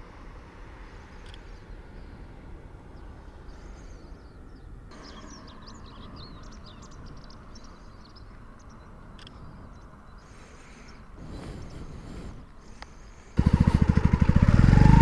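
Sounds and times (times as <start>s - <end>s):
low outdoor rumble: 0.0s - 15.0s
small birds chirping: 1.0s - 13.9s.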